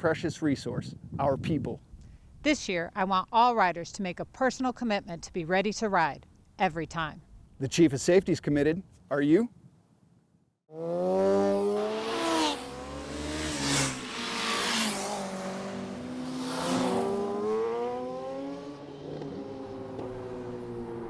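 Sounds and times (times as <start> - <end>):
motorcycle engines revving past: 10.7 - 21.0
road noise: 10.7 - 21.0.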